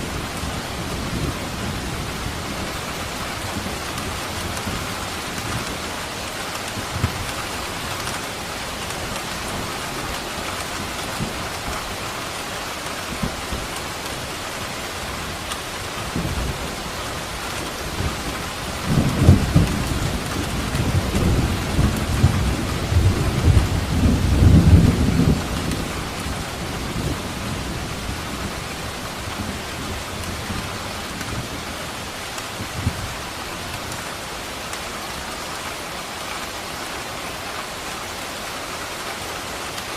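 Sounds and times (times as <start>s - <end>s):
heavy rain falling: 0.0s - 39.9s
thunder rumbling: 16.0s - 33.2s.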